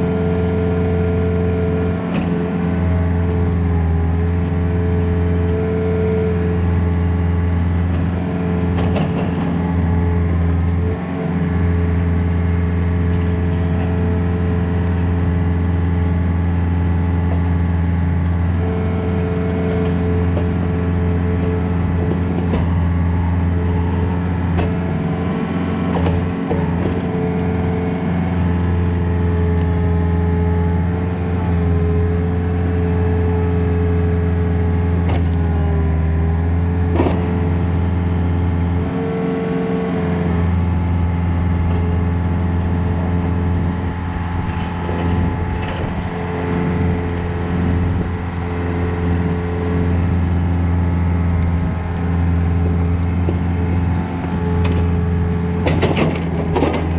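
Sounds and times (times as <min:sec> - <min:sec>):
excavator diesel engine: 0:00.0 - 0:56.9
hydraulic whine: 0:00.9 - 0:56.9.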